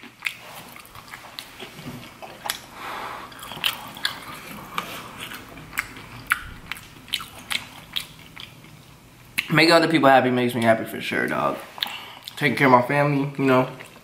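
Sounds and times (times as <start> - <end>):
wet chewing mouth smacks: 3.3 - 8.8.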